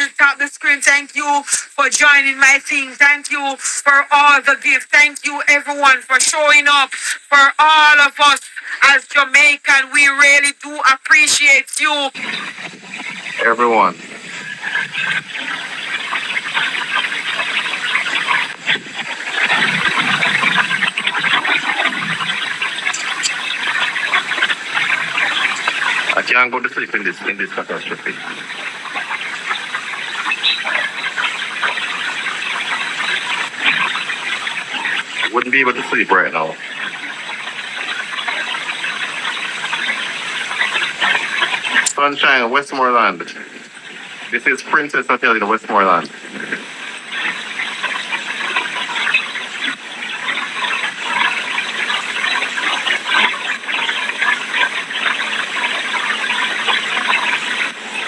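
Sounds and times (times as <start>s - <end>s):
hurricane wind: 12.1s - 26.4s
rain: 12.1s - 58.0s.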